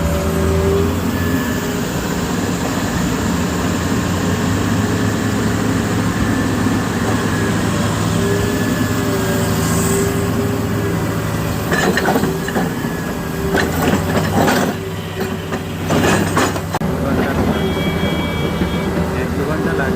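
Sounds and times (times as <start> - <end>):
diesel engine running: 0.0 - 19.9
knocks and clatter: 11.7 - 12.8, 13.5 - 19.4.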